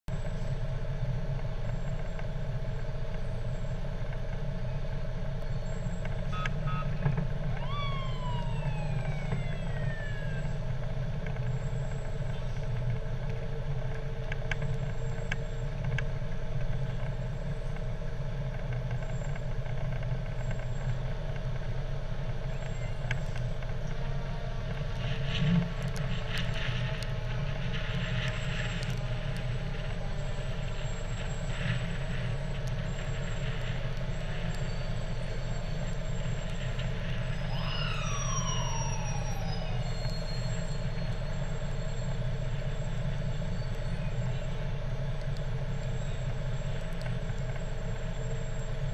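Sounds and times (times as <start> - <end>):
fire truck engine running: 0.1 - 48.9
tone sliding down in pitch: 6.3 - 10.6, 37.4 - 40.5.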